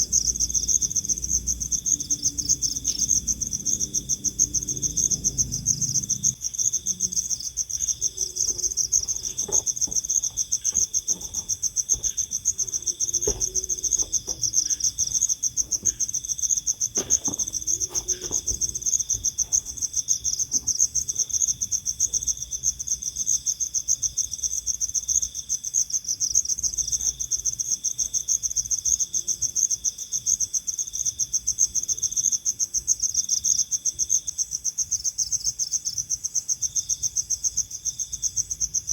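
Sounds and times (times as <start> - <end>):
crickets trilling: 0.0 - 38.9
faint taps and rustles: 7.8 - 21.5.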